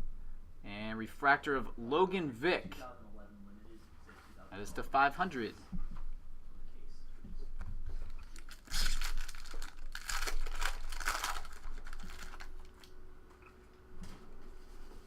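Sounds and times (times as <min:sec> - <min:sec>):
card packs crinkling and rustling: 0:07.9 - 0:12.9.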